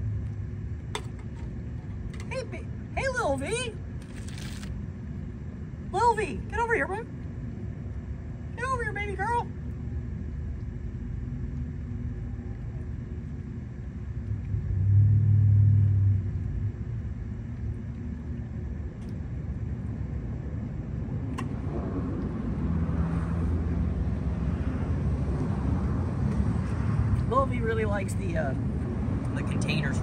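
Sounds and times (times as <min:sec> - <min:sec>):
low rumble of road traffic: 0:00.0 - 0:30.0
vehicle engine passing: 0:14.5 - 0:16.7.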